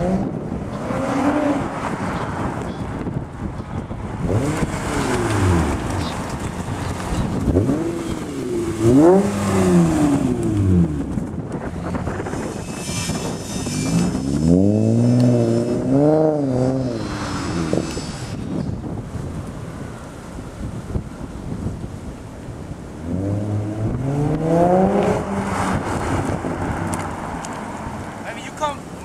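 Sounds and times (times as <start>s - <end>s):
car engine revving: 0.0s - 3.1s, 4.2s - 18.6s, 23.0s - 28.2s.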